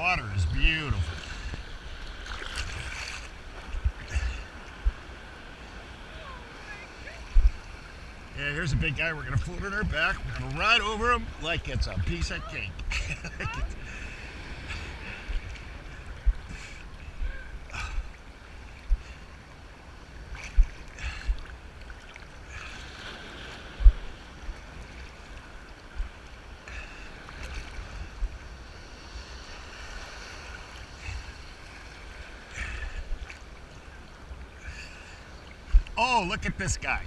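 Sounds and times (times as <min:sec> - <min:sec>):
sea surf washing: 0:00.0 - 0:37.0
wind thumps on microphone: 0:07.3 - 0:07.6, 0:11.3 - 0:13.8, 0:16.2 - 0:16.6, 0:20.5 - 0:21.4, 0:23.8 - 0:24.1, 0:35.7 - 0:36.0.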